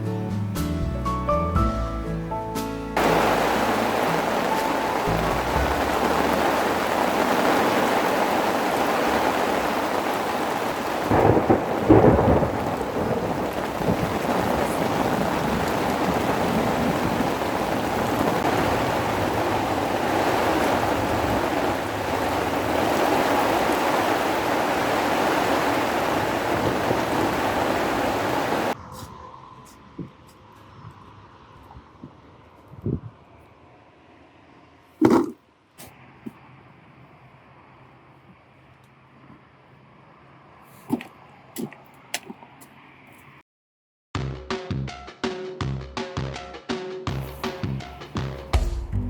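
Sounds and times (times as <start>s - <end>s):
heavy rain: 3.0s - 28.8s
thunder rumble: 3.0s - 28.8s.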